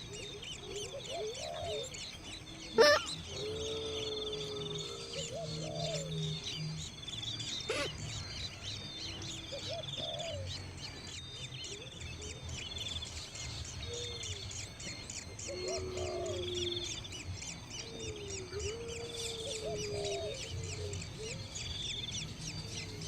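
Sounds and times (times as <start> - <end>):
birds chirping and trilling: 0.0 - 23.0
lower arching bird calls: 0.0 - 23.0
loud sweeping bird call: 2.6 - 6.4.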